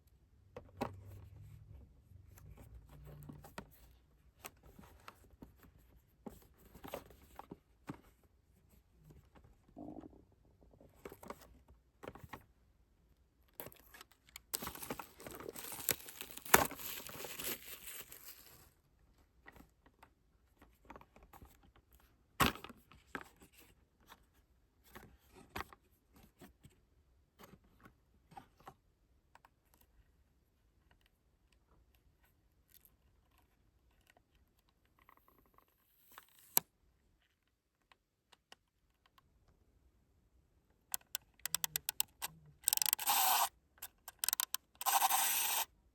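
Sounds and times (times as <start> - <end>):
packaging clicks and rustles: 13.6 - 18.7, 41.0 - 45.7
plastic wrap tearing and crinkling: 14.6 - 18.7.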